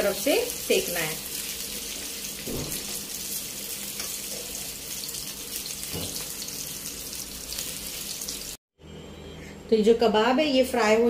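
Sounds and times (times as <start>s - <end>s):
kababs sizzling in oil: 0.0s - 8.6s.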